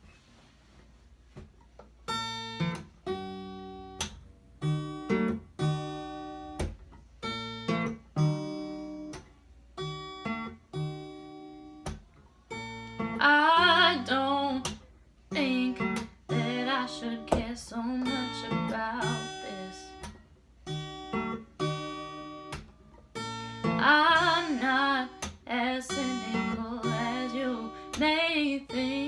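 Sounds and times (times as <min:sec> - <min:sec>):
acoustic guitar chords: 0:02.0 - 0:29.0
person singing: 0:15.3 - 0:20.0, 0:23.8 - 0:29.0.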